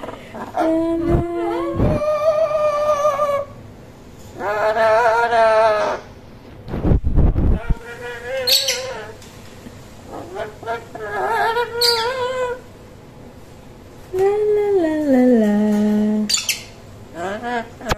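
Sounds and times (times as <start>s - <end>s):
bird squawks: 7.7s - 9.2s, 10.4s - 12.5s
pet bird singing: 8.2s - 9.1s, 10.4s - 12.6s, 16.3s - 16.8s.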